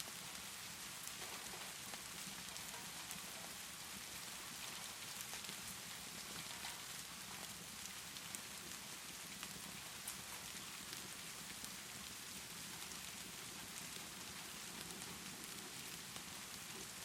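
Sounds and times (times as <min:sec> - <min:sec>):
steady rainfall: 0:00.0 - 0:17.0
wood fire crackling: 0:00.1 - 0:17.0.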